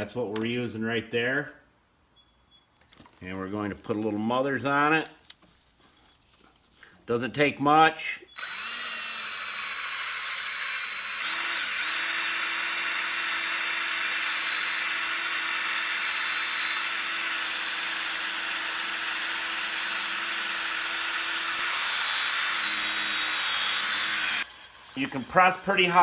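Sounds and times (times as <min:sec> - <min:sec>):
drill motor whine: 0:08.4 - 0:26.0.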